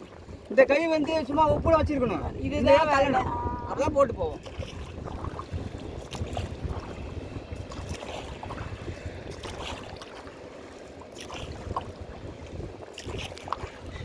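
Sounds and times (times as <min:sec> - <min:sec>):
wind rumbling on microphone: 0:00.0 - 0:14.0
oars splashing in water: 0:04.3 - 0:14.0.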